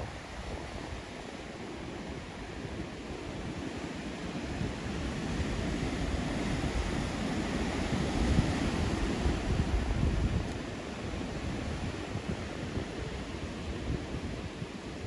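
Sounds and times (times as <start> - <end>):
gusty wind rumble: 0.0 - 15.0.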